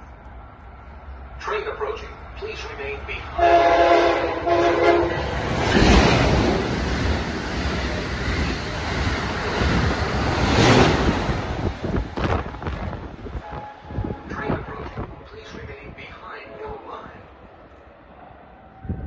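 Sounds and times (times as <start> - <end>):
train rushing past: 0.0 - 19.0
train horn: 3.4 - 5.3, 13.4 - 14.3.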